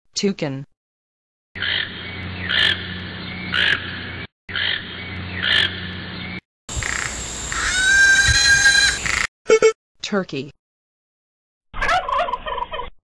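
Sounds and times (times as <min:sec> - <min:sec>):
steady low hum: 0:01.8 - 0:09.2
toucan calling: 0:06.7 - 0:09.3.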